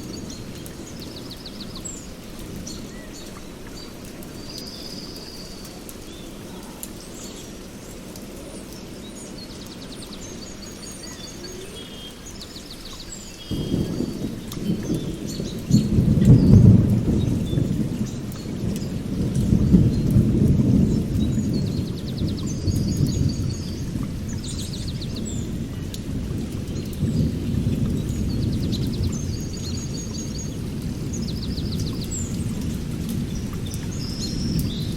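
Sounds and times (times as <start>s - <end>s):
small birds chirping: 0.0s - 34.9s
thunder rumbling: 13.4s - 34.9s.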